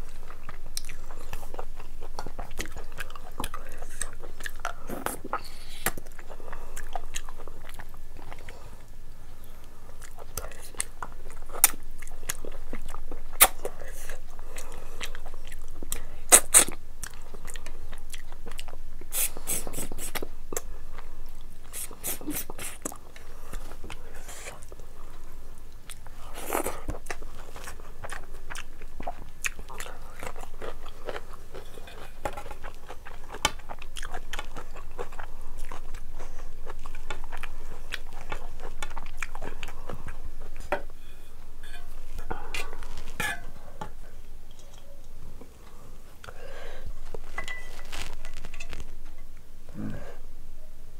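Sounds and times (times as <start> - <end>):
person chewing food: 0.0 - 49.9
mouth clicks and crunches: 10.0 - 20.7, 41.6 - 49.1.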